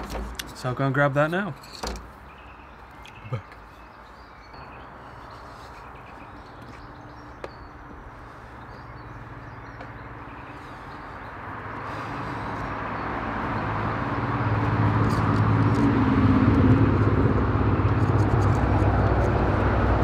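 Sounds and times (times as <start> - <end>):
faint bird chirps: 2.2 - 11.4
vehicle engine hum: 4.6 - 20.0.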